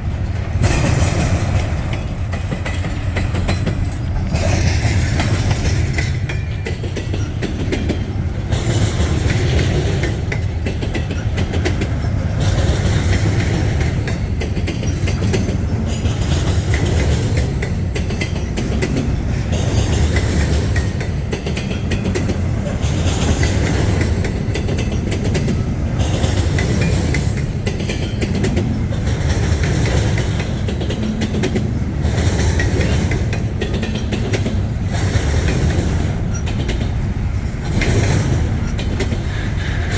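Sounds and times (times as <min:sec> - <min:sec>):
freight train rumbling: 0:00.0 - 0:39.9
wheels clacking over rail joints: 0:00.0 - 0:39.9.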